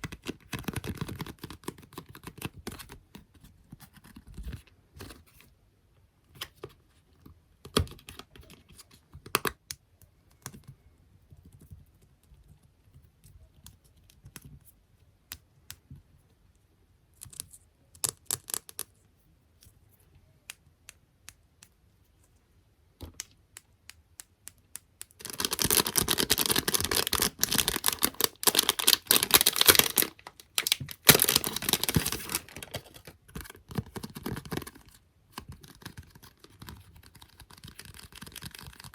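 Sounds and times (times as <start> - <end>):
scratching on small objects: 24.5 - 38.9.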